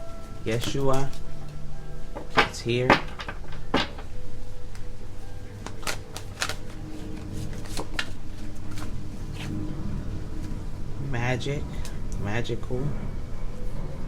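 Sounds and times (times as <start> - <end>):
soft background music: 0.0 - 14.0
cards being shuffled: 5.6 - 9.6.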